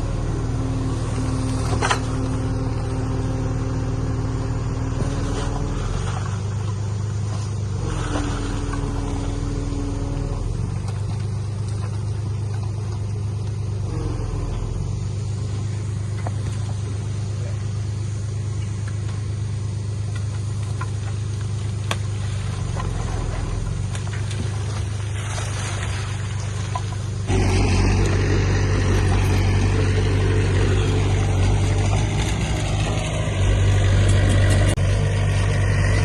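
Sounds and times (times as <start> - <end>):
higher tone: 0.0 - 6.2, 27.3 - 34.5
diesel engine droning: 0.0 - 36.0.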